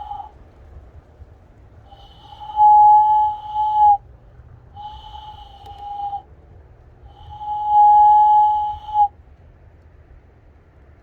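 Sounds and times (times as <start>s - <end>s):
hand whistle notes: 0.0s - 0.3s, 2.0s - 4.0s, 4.8s - 6.2s, 7.3s - 9.1s.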